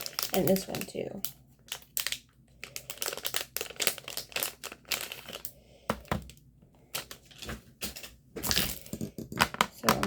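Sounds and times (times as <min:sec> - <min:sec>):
plastic packaging crinkling: 0:00.0 - 0:05.5.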